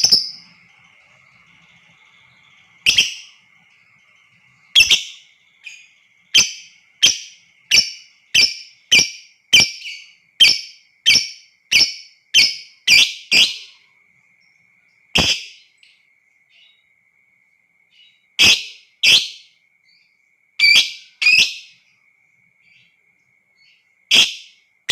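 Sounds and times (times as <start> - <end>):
lovebird shrill calls: 0.0 - 13.8, 15.2 - 15.6, 18.4 - 19.4, 20.6 - 21.7, 24.1 - 24.5
faint steady high tone: 0.0 - 24.9.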